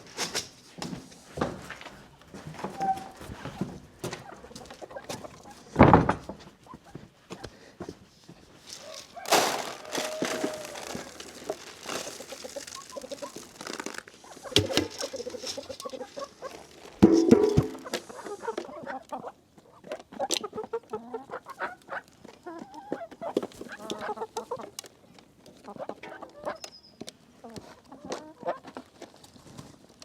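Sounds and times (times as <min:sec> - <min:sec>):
rustling: 0:08.4 - 0:18.6
chickens clucking: 0:08.7 - 0:13.5, 0:14.2 - 0:24.8
knocks: 0:17.0 - 0:18.0
loud thump: 0:17.0 - 0:18.0.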